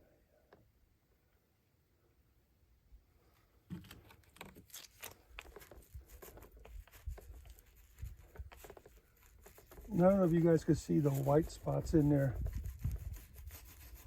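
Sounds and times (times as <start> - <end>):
soft taps and crackling rustles: 3.7 - 10.4.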